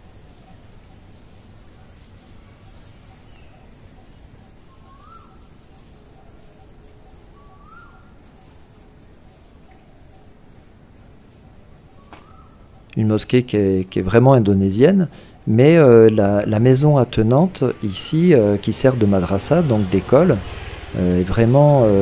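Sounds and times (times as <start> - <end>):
birds chirping: 0.0 - 22.0
faint background noise: 0.0 - 22.0
bird rising call: 2.7 - 8.9, 11.5 - 12.9.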